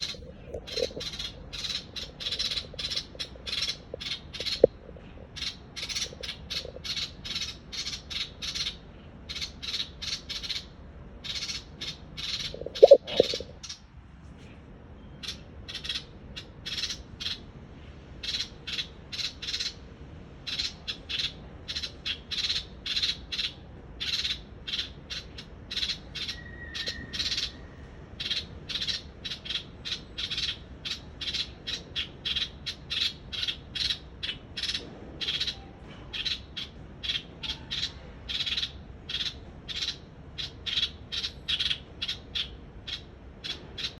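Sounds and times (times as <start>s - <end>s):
bird making scratchy calls: 0.0s - 13.8s, 20.5s - 27.6s
low steady hum: 0.0s - 19.2s.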